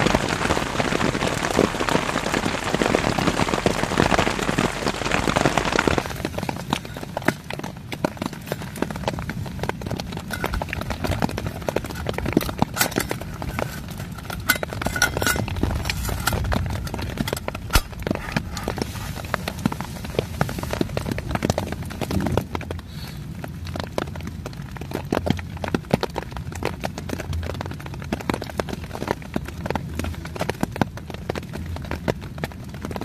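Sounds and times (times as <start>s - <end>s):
low rumble: 0.0s - 22.8s
rain pattering on a canvas tent: 0.0s - 33.0s.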